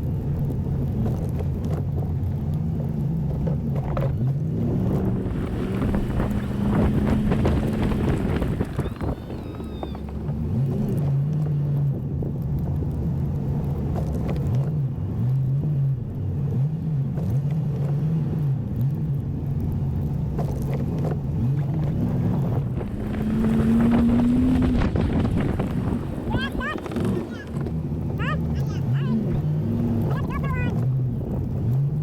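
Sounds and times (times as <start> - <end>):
pickup engine running under load: 0.0 - 10.9, 19.0 - 32.0.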